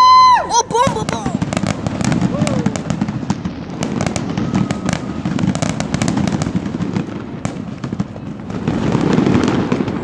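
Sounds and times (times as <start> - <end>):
fireworks cracking: 0.0 - 10.0
fireworks low booming: 0.1 - 10.0.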